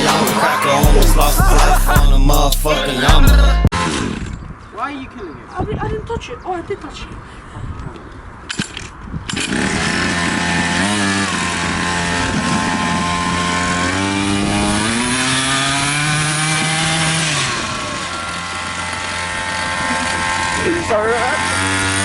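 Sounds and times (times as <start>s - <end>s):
mini moto engine revving: 3.7s - 4.4s, 9.2s - 22.0s.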